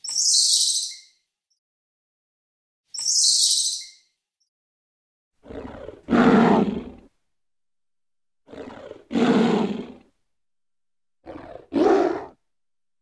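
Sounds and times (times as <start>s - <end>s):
lion roaring: 5.4s - 7.1s, 8.5s - 10.0s, 11.2s - 12.4s.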